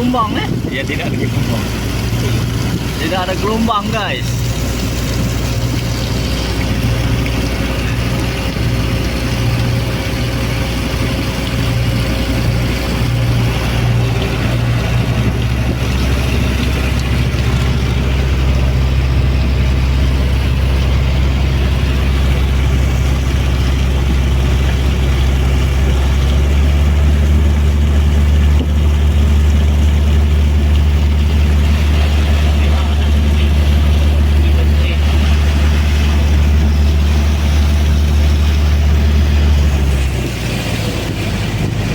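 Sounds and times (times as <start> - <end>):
boat engine running: 0.0 - 41.9
water rushing: 0.0 - 41.9
wind: 0.0 - 41.9.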